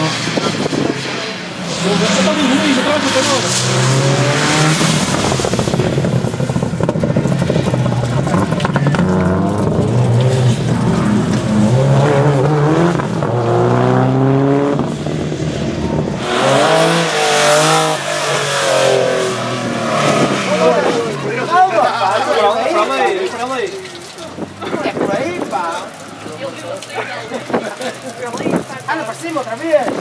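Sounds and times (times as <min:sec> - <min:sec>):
car engine revving hard: 0:00.0 - 0:21.9.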